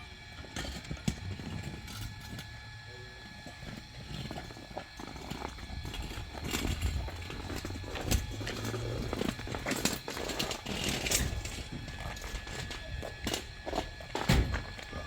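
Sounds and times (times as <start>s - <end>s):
knocks and clatter: 5.1s - 15.0s.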